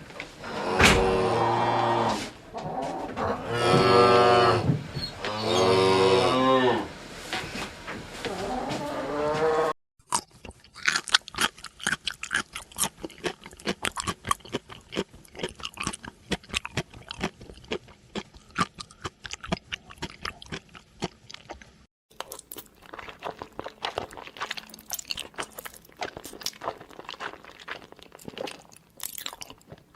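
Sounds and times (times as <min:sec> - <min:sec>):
animal chewing crunchy food: 0:10.1 - 0:29.9.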